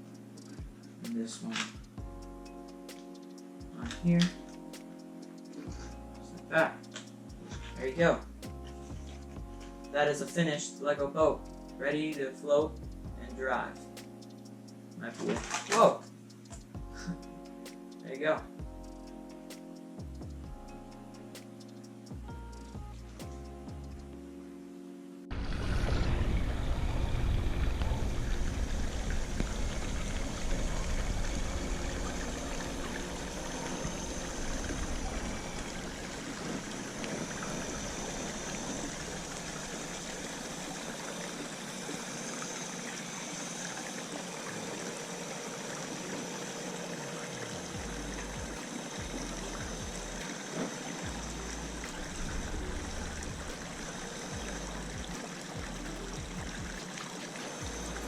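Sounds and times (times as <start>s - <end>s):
low rumble: 25.3s - 41.6s, 47.6s - 50.2s, 51.1s - 56.8s
trickling rushing water: 25.3s - 58.0s.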